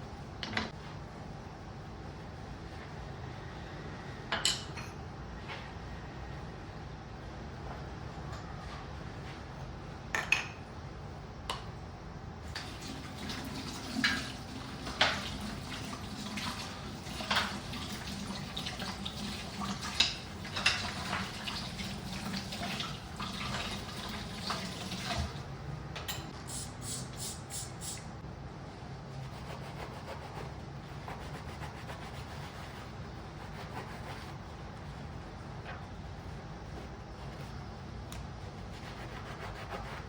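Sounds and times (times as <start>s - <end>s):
tap water running into sink: 12.5s - 25.4s.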